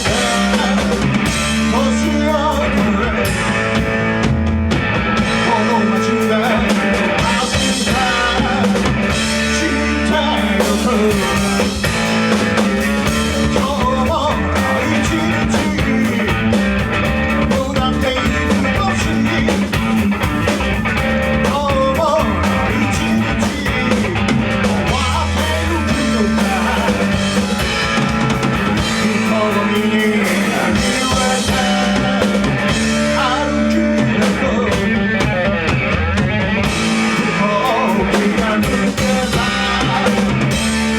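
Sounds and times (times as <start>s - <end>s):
person singing: 0.0s - 3.4s, 5.3s - 12.1s, 13.1s - 16.6s, 17.3s - 20.2s, 21.3s - 27.6s, 28.7s - 35.8s, 37.0s - 40.7s
bass guitar: 0.0s - 40.9s
drum kit: 0.0s - 40.9s
guitar: 0.0s - 40.9s.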